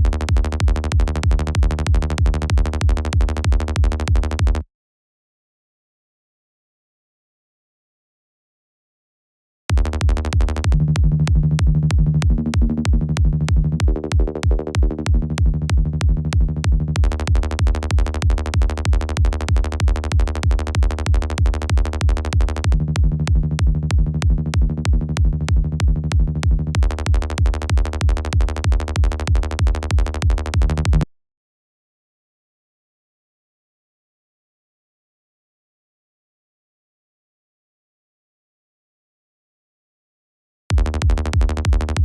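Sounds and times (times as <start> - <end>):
electronic kick drum: 0.0 - 4.6, 9.7 - 31.1, 40.7 - 42.0
synth bass line: 0.0 - 4.6, 9.7 - 31.1, 40.7 - 42.0.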